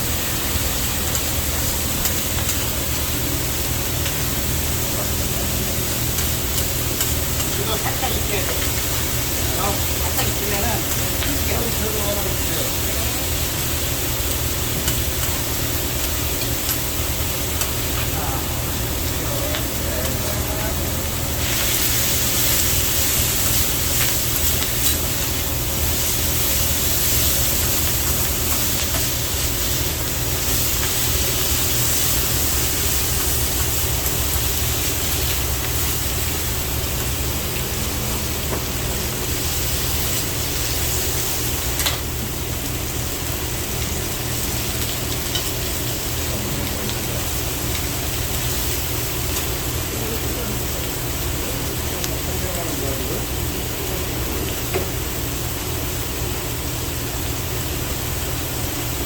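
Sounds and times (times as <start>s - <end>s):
meat sizzling on a griddle: 0.0s - 59.0s.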